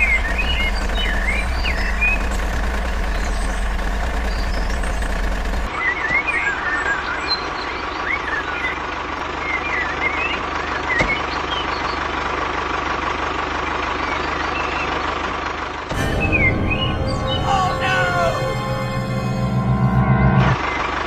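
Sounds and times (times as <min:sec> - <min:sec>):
birds chirping: 0:00.0 - 0:12.1
vehicle engine running: 0:00.0 - 0:21.0.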